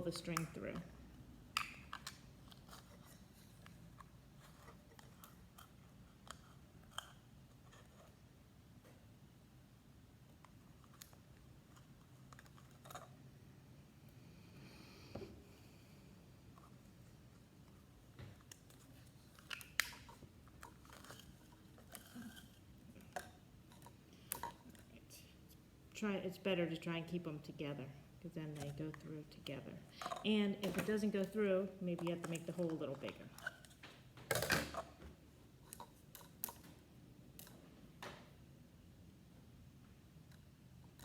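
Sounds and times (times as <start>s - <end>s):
plastic cups clicking and crinkling: 0.0s - 8.2s, 18.2s - 25.0s, 28.5s - 35.0s, 35.6s - 36.8s
plastic cups clicking: 30.0s - 35.0s.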